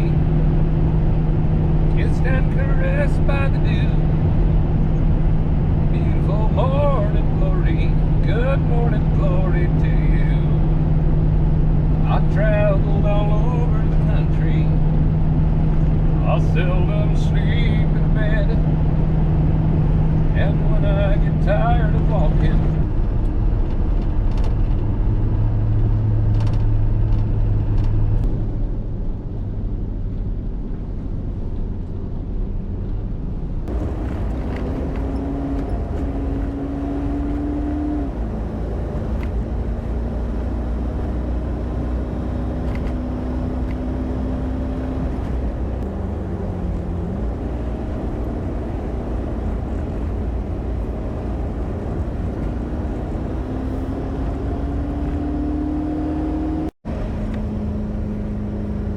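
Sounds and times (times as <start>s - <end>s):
tow truck engine running: 33.7s - 58.9s.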